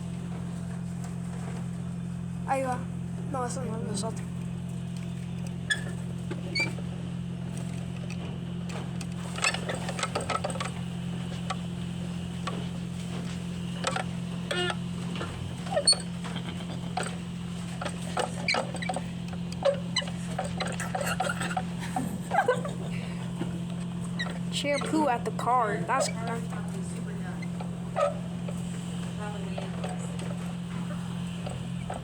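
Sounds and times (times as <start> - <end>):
car wash machinery humming: 0.0 - 32.0
squeaks and clicks: 5.0 - 6.8, 9.1 - 11.4, 12.4 - 22.9, 23.6 - 26.6, 27.2 - 32.0.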